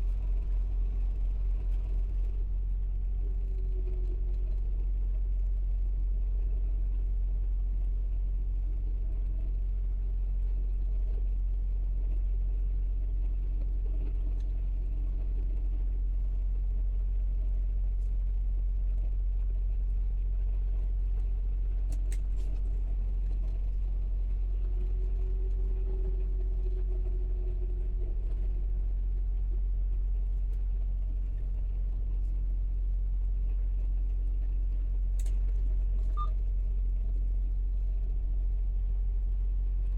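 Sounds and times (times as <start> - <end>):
truck engine rumbling: 0.0 - 7.0, 21.1 - 39.9
faint clicks: 35.1 - 36.5.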